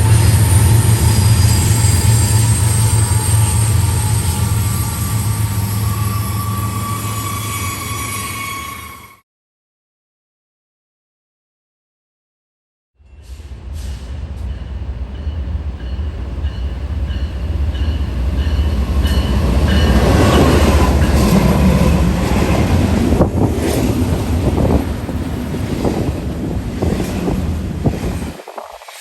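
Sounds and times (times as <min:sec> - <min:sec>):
high wheel squeal: 0:00.0 - 0:09.2
train rumbling past: 0:00.0 - 0:09.2, 0:13.0 - 0:29.0.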